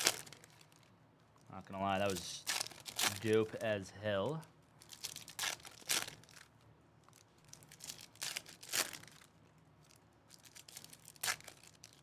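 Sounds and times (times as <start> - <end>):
foil wrappers crinkling and tearing: 0.0 - 0.9, 2.0 - 3.6, 4.8 - 6.5, 7.1 - 12.0.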